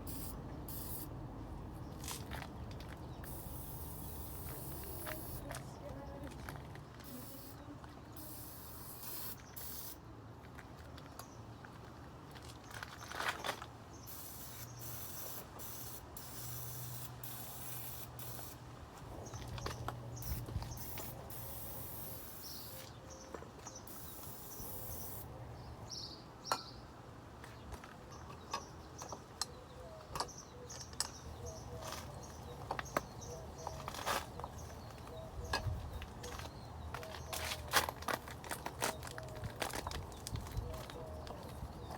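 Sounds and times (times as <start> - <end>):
aerosol can spraying: 0.1 - 1.1, 3.3 - 5.5, 7.0 - 7.6, 8.2 - 10.0, 14.1 - 18.6.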